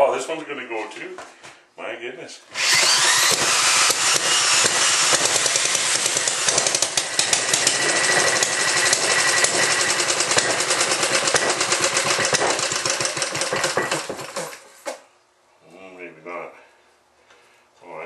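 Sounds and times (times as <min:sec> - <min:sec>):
small gas engine running: 0:02.6 - 0:14.7.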